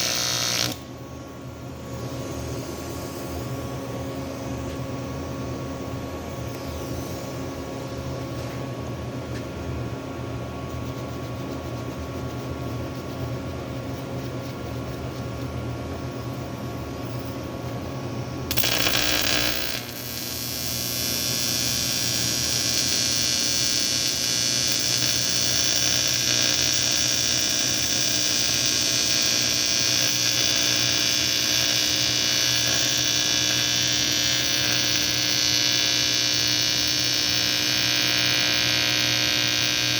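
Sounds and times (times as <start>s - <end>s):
welding arc buzzing: 0.0s - 0.9s, 18.5s - 39.9s.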